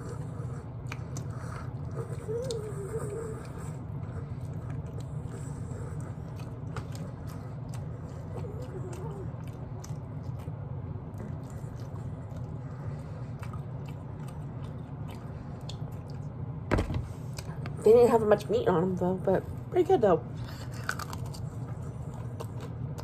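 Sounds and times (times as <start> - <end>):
chewing meat off bone: 0.0 - 16.6.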